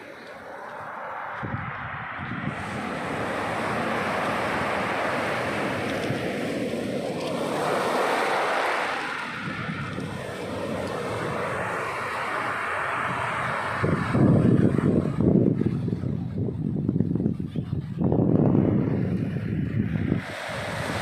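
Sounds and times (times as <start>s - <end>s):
waves breaking: 0.0s - 1.4s, 2.4s - 16.4s, 19.1s - 21.0s
wind buffeting microphone: 0.0s - 21.0s.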